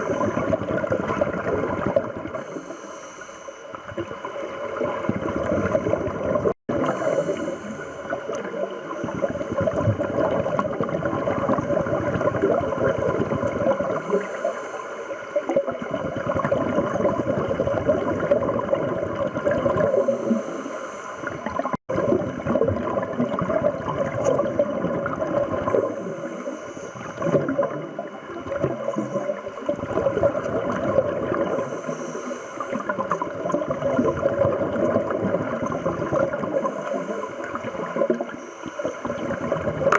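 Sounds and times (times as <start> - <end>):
bubbles rushing and gurgling: 0.0 - 2.7, 3.7 - 20.6, 21.2 - 39.9
divers breathing through regulators: 2.4 - 3.8, 6.8 - 9.8, 14.0 - 15.4, 19.9 - 21.5, 25.8 - 27.4, 31.5 - 32.9, 35.7 - 37.6, 38.2 - 39.6.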